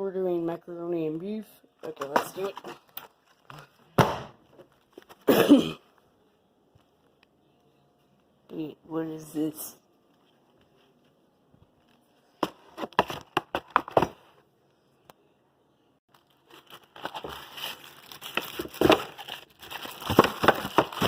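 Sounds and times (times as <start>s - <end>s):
packaging crinkling and rustling: 16.1s - 21.0s.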